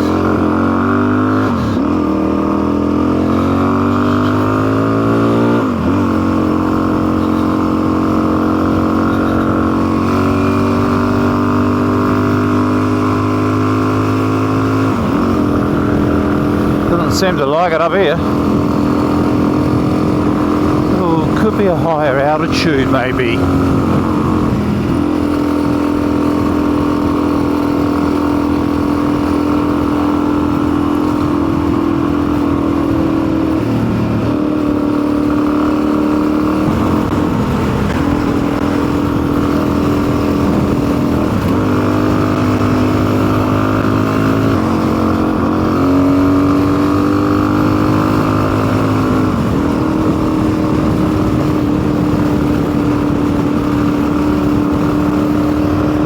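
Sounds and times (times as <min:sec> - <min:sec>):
motorcycle engine running: 0:00.0 - 0:56.0
man talking: 0:16.8 - 0:18.3, 0:20.8 - 0:23.6.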